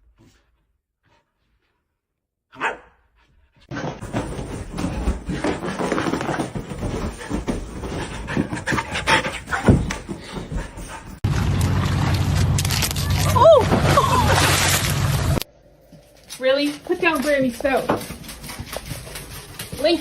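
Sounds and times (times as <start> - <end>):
dog barking: 2.5 - 3.0
dog panting: 3.2 - 11.2, 17.8 - 20.0.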